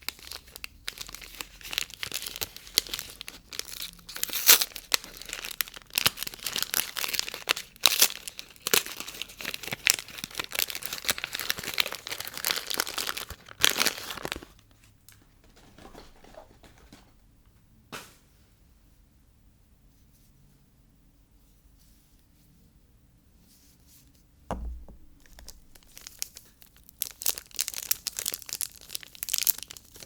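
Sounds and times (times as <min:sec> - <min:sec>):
packaging crinkling and tearing: 0:00.0 - 0:14.6, 0:25.2 - 0:30.0
faint handling: 0:24.5 - 0:26.5.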